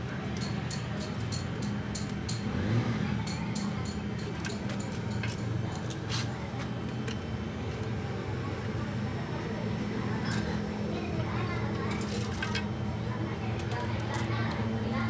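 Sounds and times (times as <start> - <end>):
metal tools clinking: 3.3 - 6.3.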